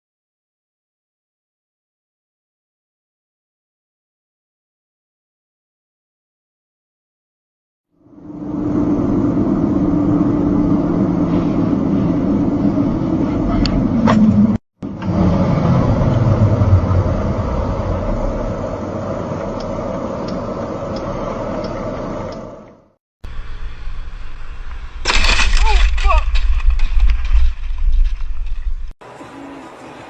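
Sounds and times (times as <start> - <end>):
car engine: 8.0 - 25.6
road noise: 8.0 - 30.0.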